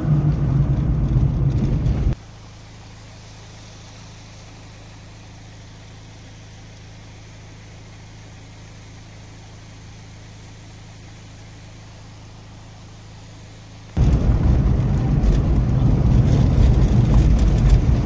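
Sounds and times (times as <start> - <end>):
vehicle engine droning: 0.0 - 18.0
faint hiss: 2.1 - 14.2.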